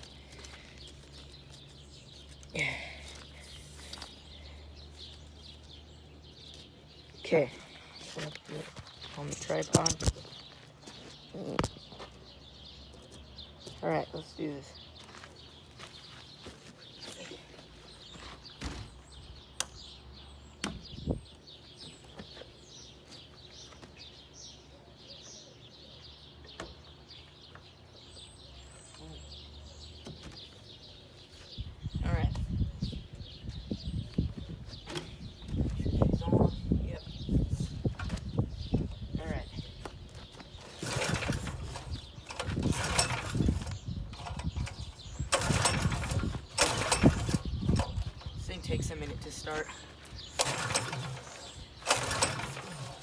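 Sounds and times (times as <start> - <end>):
small birds chirping: 0.0 - 53.0
recoil starter pulls: 40.6 - 53.0.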